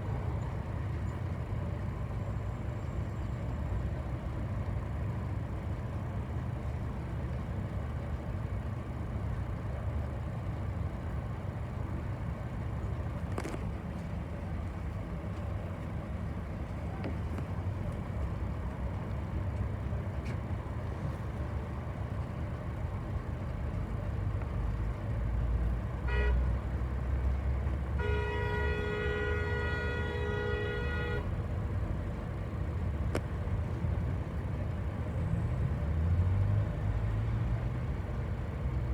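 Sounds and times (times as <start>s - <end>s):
bus engine rumbling: 0.0s - 38.9s
vehicle horn honking: 26.1s - 26.5s, 27.9s - 31.3s.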